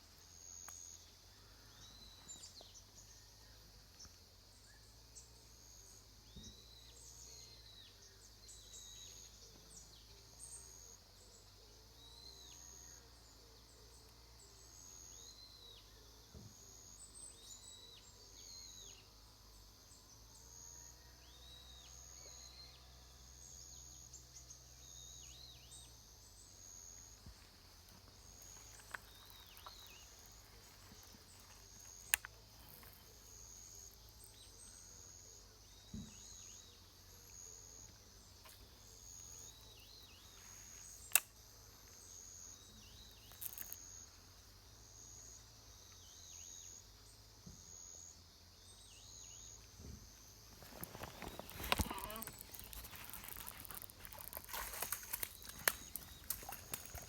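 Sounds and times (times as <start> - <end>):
insect trill: 0.0 - 57.0
birds chirping: 50.5 - 57.0.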